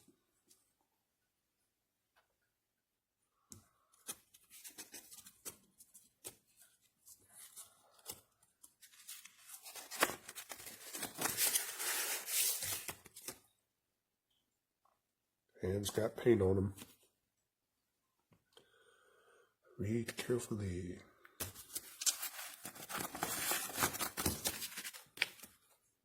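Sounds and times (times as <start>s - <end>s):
crinkling rustle: 4.3s - 13.4s, 21.4s - 25.6s.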